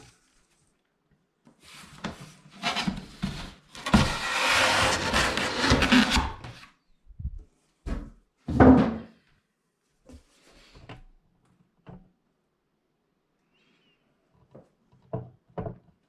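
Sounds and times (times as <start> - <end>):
loud scraping noise: 3.8 - 6.6.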